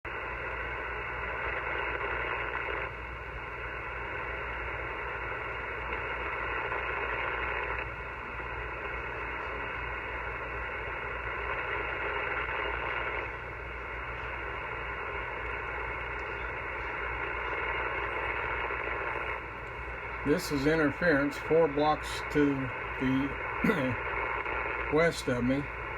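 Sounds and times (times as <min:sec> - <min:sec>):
harsh buzzing radio interference: 0:00.1 - 0:25.9.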